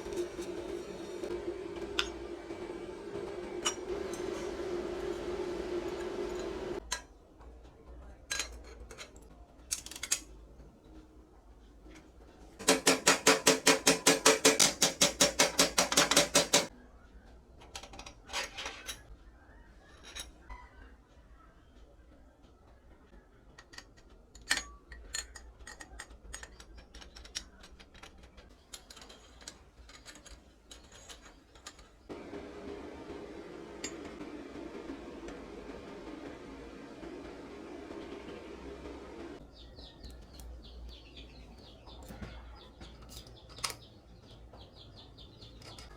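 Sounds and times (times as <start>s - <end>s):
steady hum: 0.0s - 6.8s, 32.1s - 39.6s
metal tools clinking: 24.4s - 32.1s, 33.4s - 34.2s.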